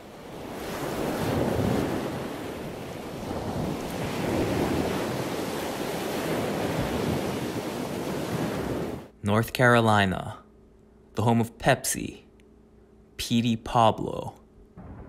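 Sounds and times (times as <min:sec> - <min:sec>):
ocean waves washing: 0:00.0 - 0:09.1.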